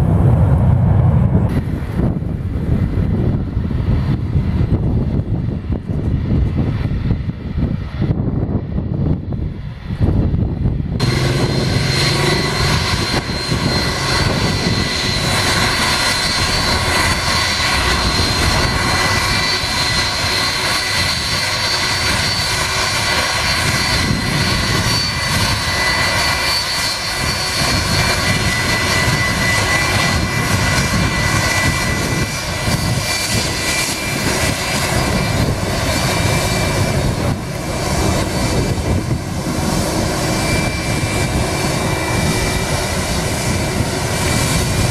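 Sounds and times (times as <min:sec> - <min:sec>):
high steady engine whine: 0:00.0 - 0:44.9
jet engines roaring: 0:00.0 - 0:44.9.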